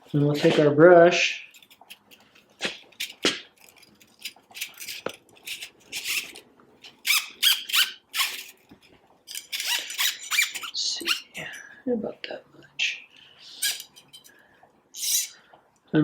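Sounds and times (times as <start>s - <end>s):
short squeaks: 5.5s - 8.6s, 9.5s - 11.3s.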